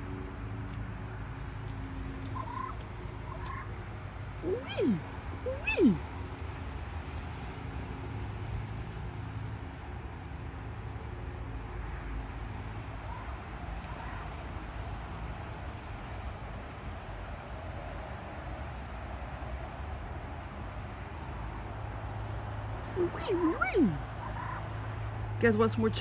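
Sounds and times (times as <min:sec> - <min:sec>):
insect trilling: 0:01.6 - 0:07.6, 0:09.2 - 0:15.4, 0:22.1 - 0:26.0.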